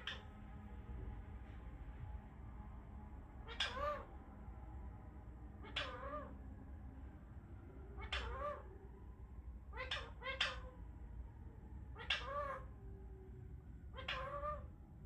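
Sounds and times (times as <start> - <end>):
parrot imitating cat meow: 3.4 - 4.1, 5.6 - 6.4, 8.0 - 8.7, 9.7 - 10.8, 12.0 - 12.7, 13.9 - 14.7.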